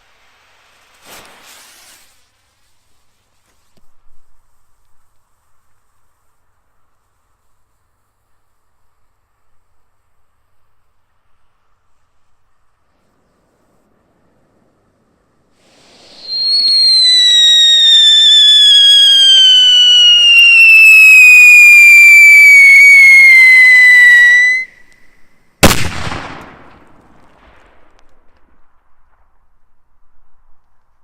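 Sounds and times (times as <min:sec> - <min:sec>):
firework rocket whistle: 0:00.9 - 0:02.3, 0:15.6 - 0:26.4
firework bang: 0:01.0 - 0:02.2, 0:15.6 - 0:24.7, 0:25.6 - 0:29.3.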